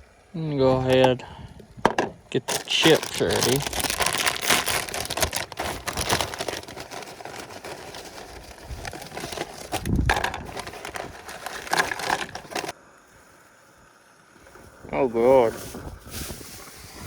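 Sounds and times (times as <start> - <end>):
chips crackling and rattling: 1.9 - 12.8
chip bag crinkling: 2.3 - 12.8.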